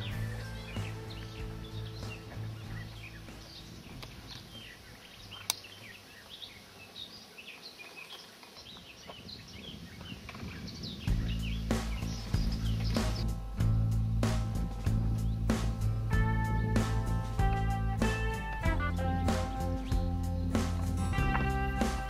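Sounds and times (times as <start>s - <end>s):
background music: 0.0s - 6.0s, 11.1s - 22.0s
songbirds chirping: 0.0s - 22.0s.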